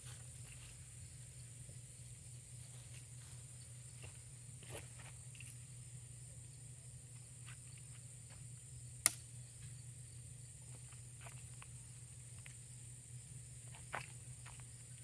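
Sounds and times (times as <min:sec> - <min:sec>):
insects chirring: 0:00.0 - 0:15.0
sharp snap: 0:09.0 - 0:09.3.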